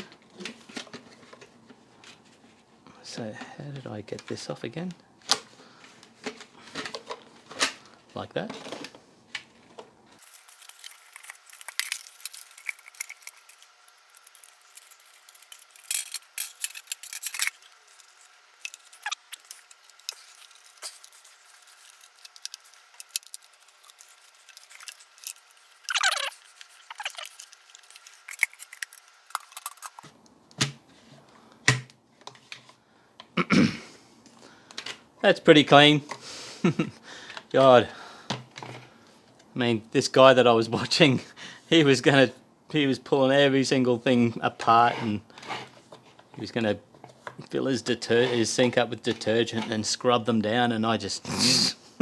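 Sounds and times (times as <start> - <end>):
plastic parts clicking and tapping: 10.2 - 30.1.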